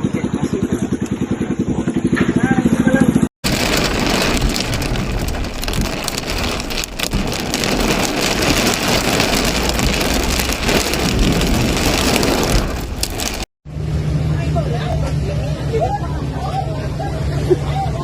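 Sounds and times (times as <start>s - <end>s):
heavy rain pouring: 3.4s - 13.5s
sharp water spatters: 3.4s - 13.5s.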